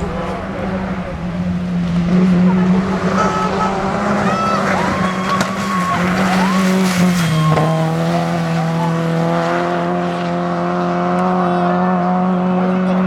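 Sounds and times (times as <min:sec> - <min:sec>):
rally car engine at high revs: 0:00.0 - 0:13.0
tyre squeals: 0:02.4 - 0:09.1.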